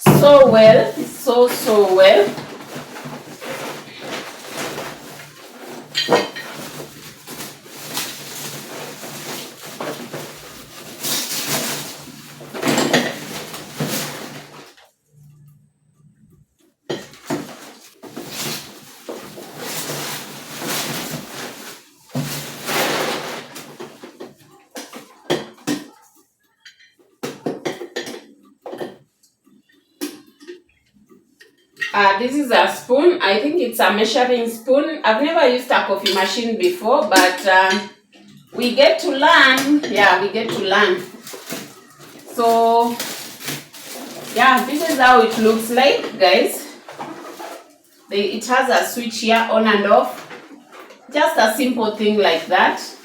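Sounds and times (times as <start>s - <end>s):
pieces knocking and clattering: 0.0s - 14.8s, 39.3s - 47.7s
box and packing rustling: 0.0s - 14.9s, 16.8s - 26.1s, 37.2s - 53.0s.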